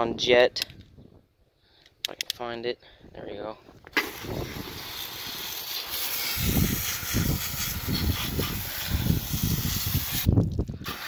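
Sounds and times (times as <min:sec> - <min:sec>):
hose spraying water: 0:04.0 - 0:11.0.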